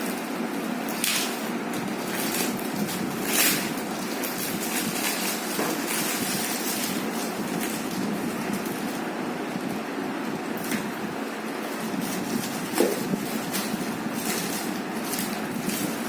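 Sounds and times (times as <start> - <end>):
packaging rustling and knocking: 1.1 - 8.6, 12.0 - 16.0.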